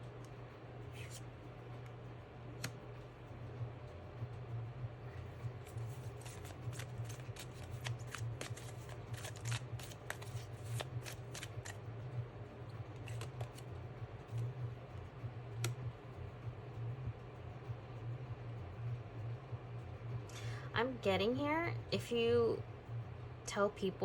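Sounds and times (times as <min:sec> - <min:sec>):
low steady hum: 0:00.0 - 0:24.0
cards being shuffled: 0:01.0 - 0:01.2, 0:05.5 - 0:11.8, 0:12.9 - 0:13.7.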